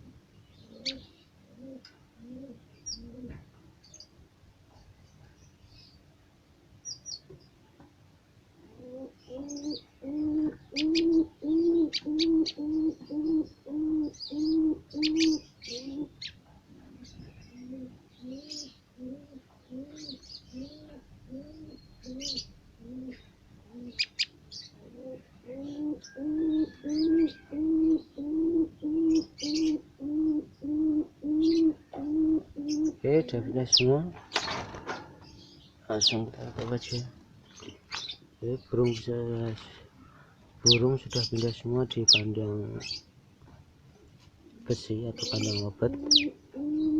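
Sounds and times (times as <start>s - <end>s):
low cooing: 0.6s - 3.5s, 8.6s - 16.2s, 16.8s - 24.2s, 24.8s - 33.8s, 44.4s - 46.9s.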